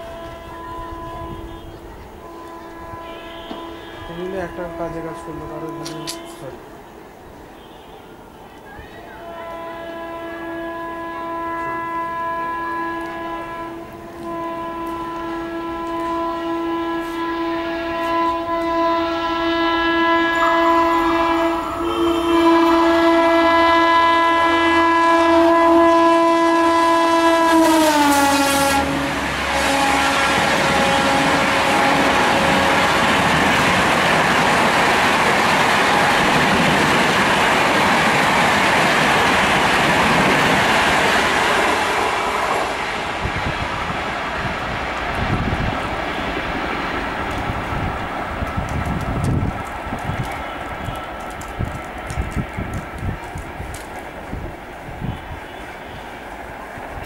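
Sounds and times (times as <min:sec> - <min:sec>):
locomotive horn blast: 0:00.0 - 0:06.6, 0:09.2 - 0:33.7, 0:41.6 - 0:42.8
train coaches rushing past: 0:00.0 - 0:57.0
wheels clickety-clack: 0:30.3 - 0:41.8, 0:44.5 - 0:54.8.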